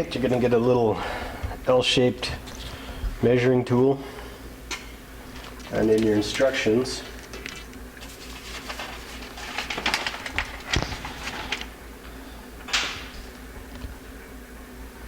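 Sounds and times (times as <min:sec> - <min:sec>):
paper rustling: 0:05.3 - 0:11.8.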